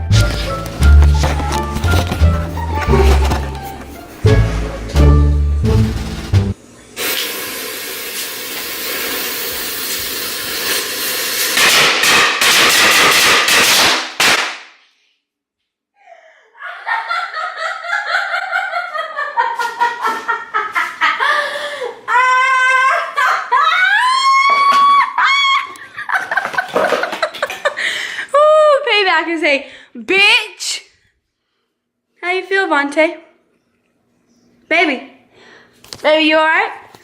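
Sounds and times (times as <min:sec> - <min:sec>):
firecrackers popping: 0:10.3 - 0:14.8
person laughing and shrieking: 0:21.2 - 0:25.9.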